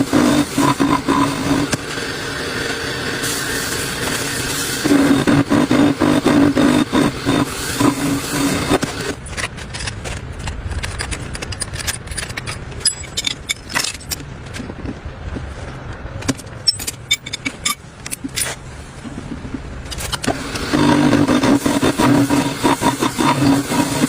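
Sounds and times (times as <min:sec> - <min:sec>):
metallic clinks and scrapes: 0:06.8 - 0:14.7, 0:16.4 - 0:18.6.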